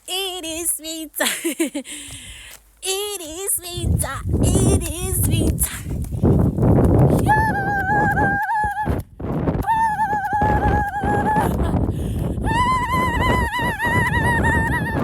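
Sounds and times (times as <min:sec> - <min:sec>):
wind on microphone: 0:03.3 - 0:15.0.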